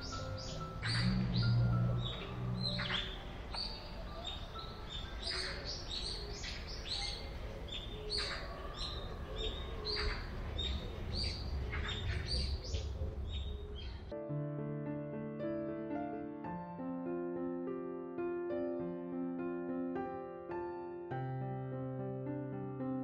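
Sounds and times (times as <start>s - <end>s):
small birds chirping: 0.0s - 14.1s.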